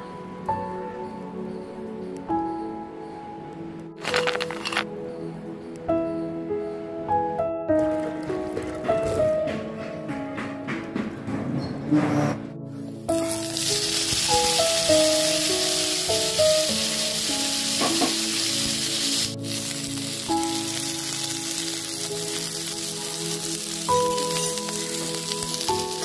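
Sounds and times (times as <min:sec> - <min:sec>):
background music: 0:00.0 - 0:26.0
onions sizzling in hot oil: 0:13.0 - 0:26.0.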